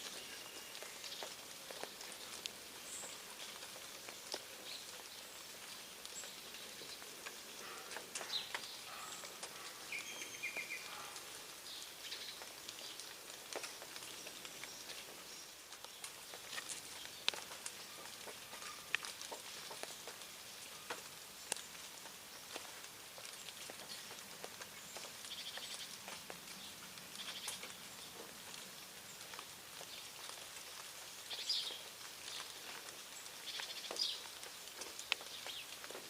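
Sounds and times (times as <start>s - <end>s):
birds pecking: 0.0s - 36.0s
steady hiss: 0.0s - 36.0s
high bird chirps: 7.7s - 11.1s.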